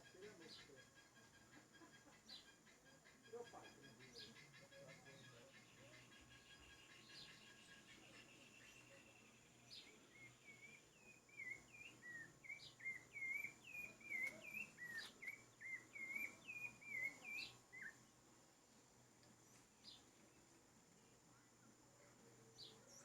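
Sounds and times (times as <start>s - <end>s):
thrush singing whistled notes: 10.1s - 18.0s.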